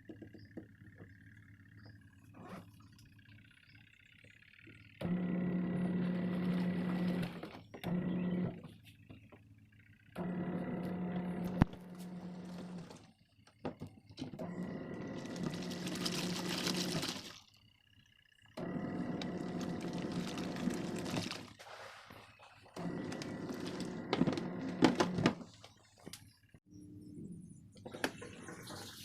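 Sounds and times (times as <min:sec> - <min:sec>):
washing machine motor humming: 0:00.0 - 0:29.0
water sloshing in tub: 0:14.9 - 0:17.6, 0:18.7 - 0:24.8, 0:27.9 - 0:29.0.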